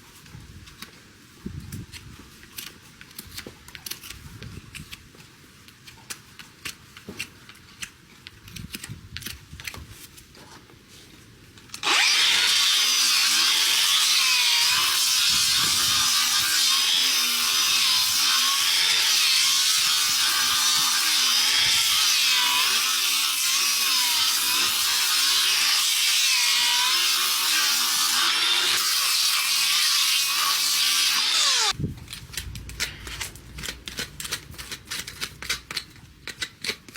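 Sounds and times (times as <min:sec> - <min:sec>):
hoof trimming clicks and scrapes: 0:00.1 - 0:12.0, 0:31.5 - 0:36.9
power tool grinding hoof: 0:11.8 - 0:31.8.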